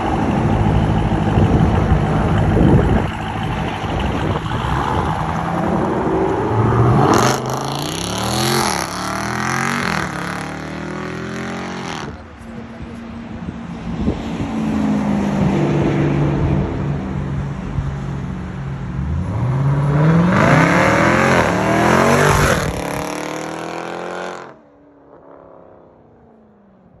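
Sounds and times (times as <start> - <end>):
car engine revving and accelerating: 0.0 - 12.3, 19.0 - 24.6.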